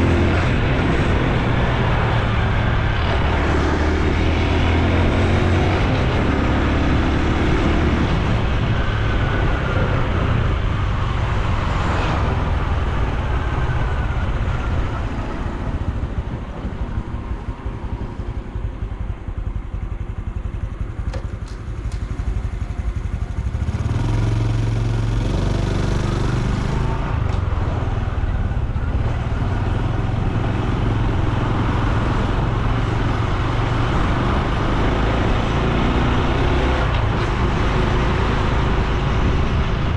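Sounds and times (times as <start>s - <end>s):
wind rushing: 0.0s - 20.8s, 23.9s - 32.0s
motorcycle engine running: 0.0s - 39.9s.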